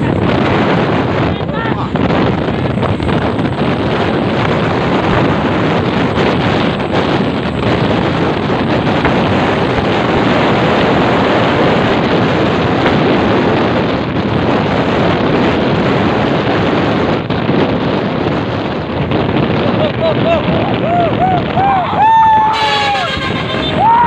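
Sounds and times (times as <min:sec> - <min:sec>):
vehicle road noise: 0:00.0 - 0:24.0
wind rush on microphone: 0:00.0 - 0:24.0.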